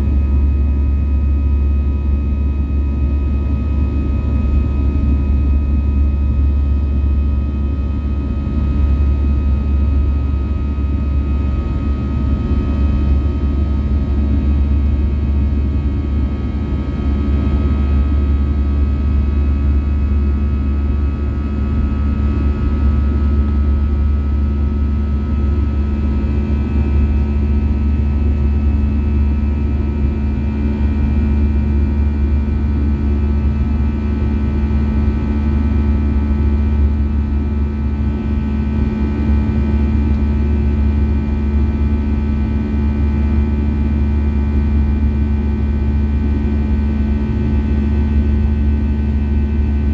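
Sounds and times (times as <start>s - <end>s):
jet engine drone in cabin: 0.0s - 49.9s.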